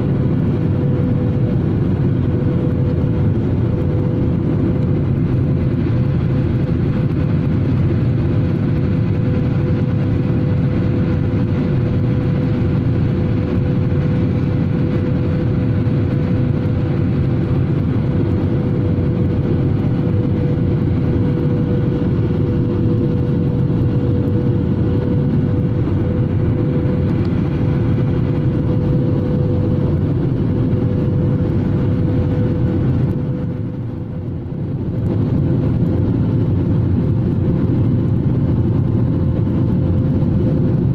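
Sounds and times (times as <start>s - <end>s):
airliner cabin air rush and engine drone: 0.0s - 40.9s
constant hum: 0.0s - 40.9s.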